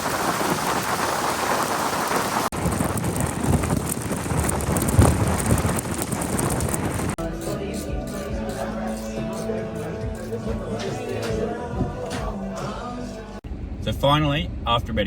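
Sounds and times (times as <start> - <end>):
heavy rain pattering: 0.0 - 7.2.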